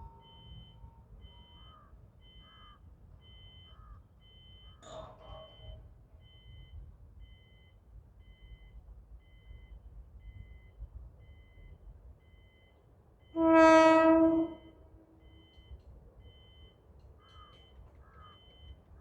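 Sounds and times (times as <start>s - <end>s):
level crossing signal beeping: 0.0s - 4.8s, 14.2s - 18.9s
train horn: 13.3s - 15.2s.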